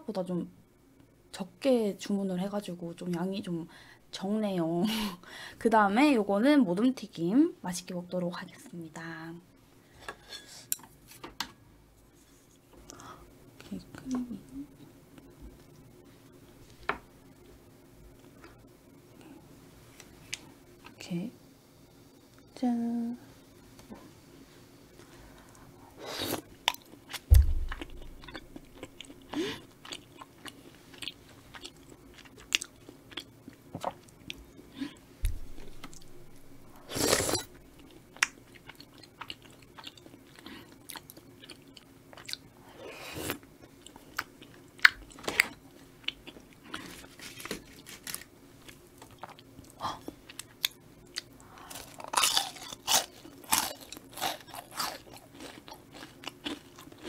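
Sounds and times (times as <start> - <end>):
chewing and wet mouth sounds: 26.3 - 34.7, 35.3 - 42.5, 43.2 - 57.0
dull thump: 27.3 - 28.2.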